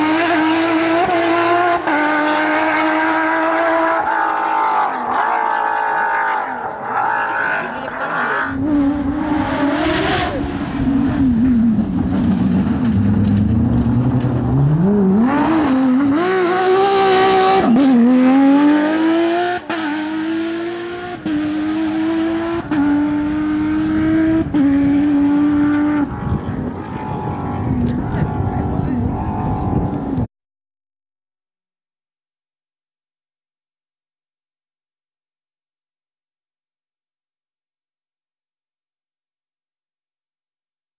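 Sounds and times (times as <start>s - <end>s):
sports car engine revving: 6.5s - 30.3s.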